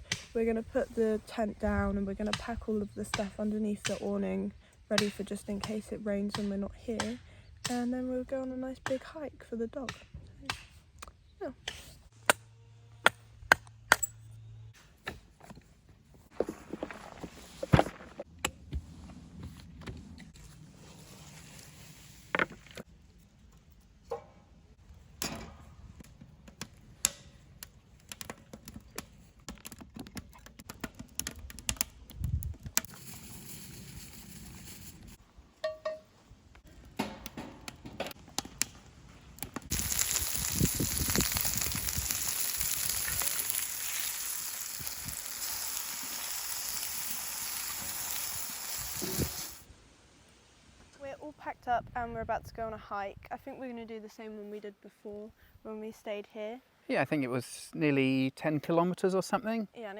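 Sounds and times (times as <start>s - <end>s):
food sizzling in a pan: 39.7s - 49.7s.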